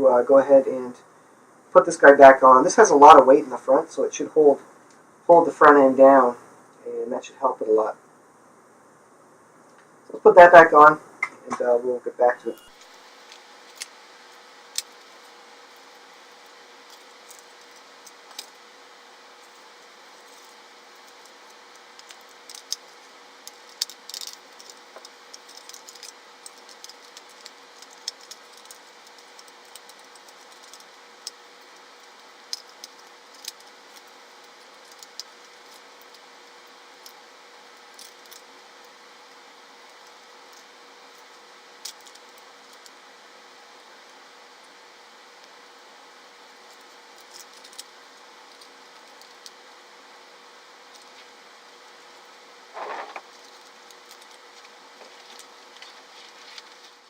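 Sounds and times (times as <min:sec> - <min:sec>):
faint steady hiss and hum: 0:00.0 - 0:57.0
toy train clicks and rattles: 0:20.3 - 0:36.2.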